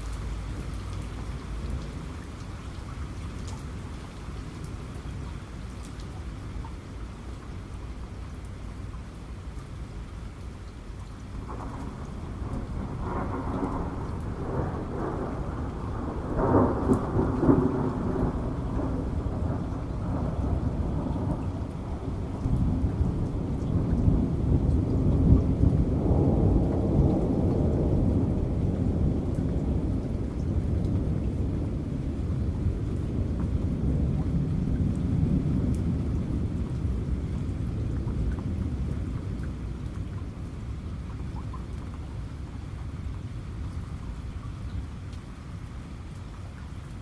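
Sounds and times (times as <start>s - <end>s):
heavy rain: 0.0s - 47.0s
thunder rumbling: 11.4s - 41.4s.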